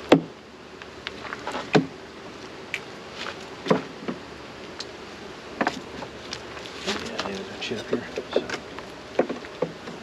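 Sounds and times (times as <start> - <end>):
wooden knocks of hive frames: 3.6 - 4.2, 9.2 - 10.0.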